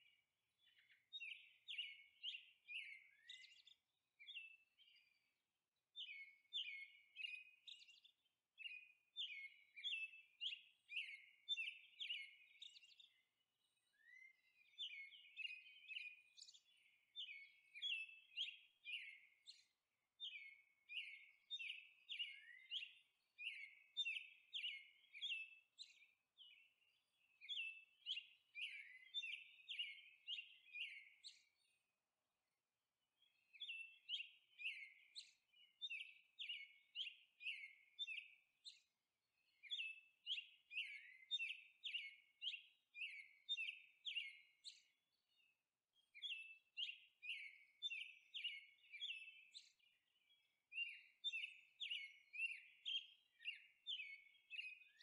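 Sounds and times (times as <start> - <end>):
faint birdsong chirps: 0.0 - 55.0.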